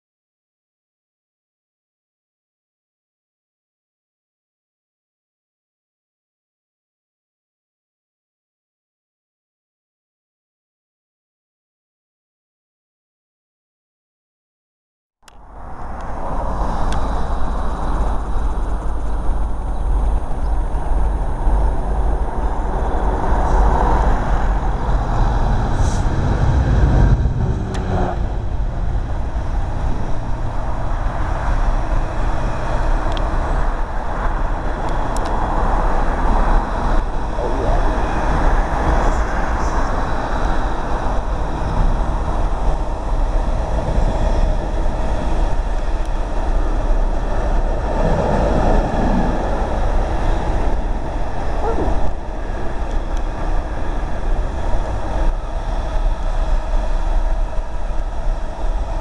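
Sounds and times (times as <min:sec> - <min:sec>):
diesel locomotive rumble: 0:15.4 - 0:59.0.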